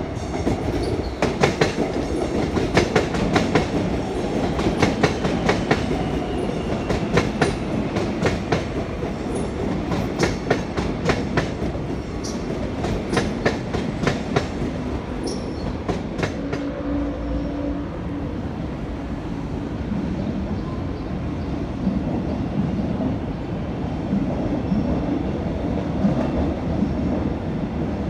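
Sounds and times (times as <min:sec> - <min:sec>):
train rumble: 0:00.0 - 0:28.0
train wheels clacking over rail joints: 0:00.2 - 0:06.1, 0:06.8 - 0:16.7.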